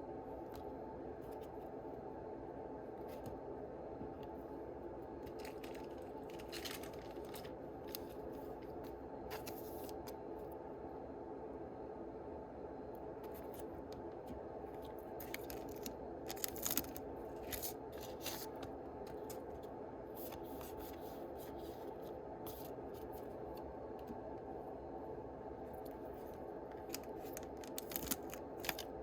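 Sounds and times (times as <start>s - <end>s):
foil wrappers crinkling: 5.3s - 8.6s, 15.2s - 18.6s, 26.7s - 29.0s.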